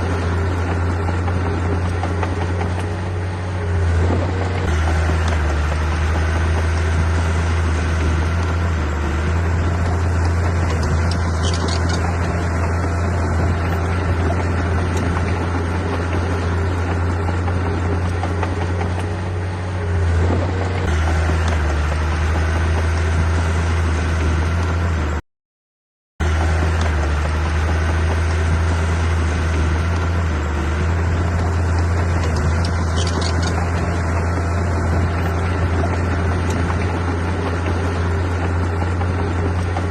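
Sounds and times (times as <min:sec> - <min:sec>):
diesel engine humming: 0:00.0 - 0:25.2, 0:26.2 - 0:39.9.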